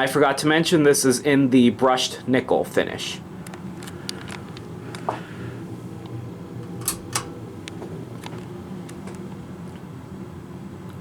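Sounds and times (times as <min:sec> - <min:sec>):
ceiling fan motor hum: 0:00.0 - 0:11.0
short clicks: 0:06.7 - 0:07.4.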